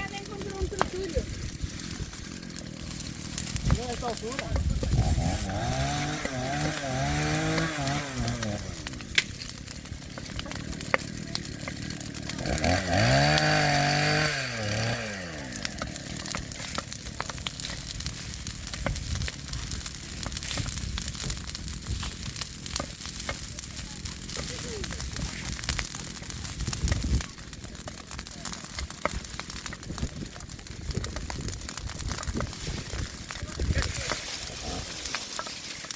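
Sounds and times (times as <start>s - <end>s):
crackles and clicks: 0.0s - 35.9s
chainsaw revving: 1.2s - 9.2s, 10.0s - 17.3s, 33.0s - 35.9s.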